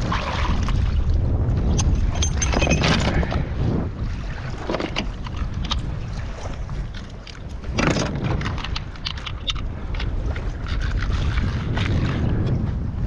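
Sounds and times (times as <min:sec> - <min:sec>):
water splashing against kayak hull: 0:00.0 - 0:13.0
wind buffeting microphone: 0:00.0 - 0:13.0.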